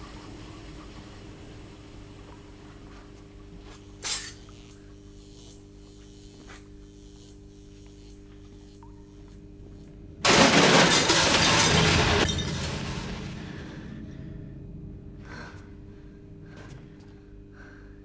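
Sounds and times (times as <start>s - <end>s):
loud crash: 10.2s - 14.6s
low steady hum: 12.4s - 18.0s.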